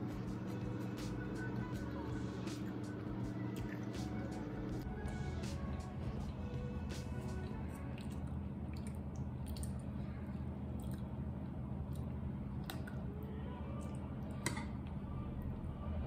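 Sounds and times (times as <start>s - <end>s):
steady low hum: 0.0s - 16.0s
chewing food: 7.3s - 14.9s.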